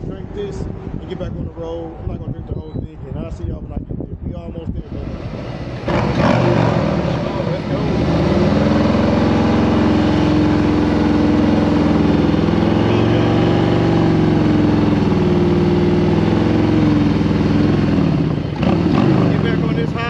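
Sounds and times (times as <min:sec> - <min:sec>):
motorcycle engine running: 0:05.2 - 0:20.0.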